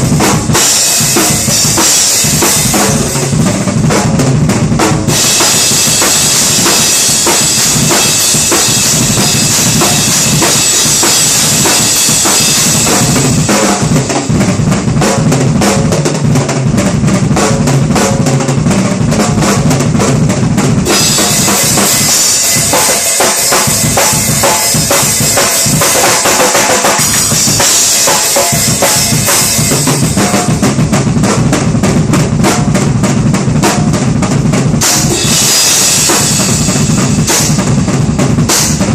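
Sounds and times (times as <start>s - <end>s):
drum kit playing: 0.0s - 38.9s
cymbals washing: 5.1s - 13.5s, 20.9s - 30.5s, 34.8s - 37.8s.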